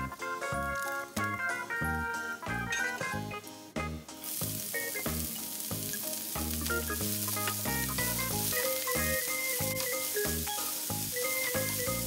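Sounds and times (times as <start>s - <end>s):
background music: 0.0s - 12.0s
onions sizzling in a frying pan: 0.4s - 1.3s, 4.2s - 12.0s
spatula stirring: 4.2s - 12.0s.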